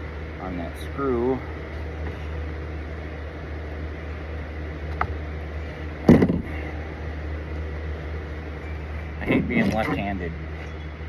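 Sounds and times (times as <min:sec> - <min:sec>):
steady low hum: 0:00.0 - 0:11.0
louder clunk: 0:06.1 - 0:06.5.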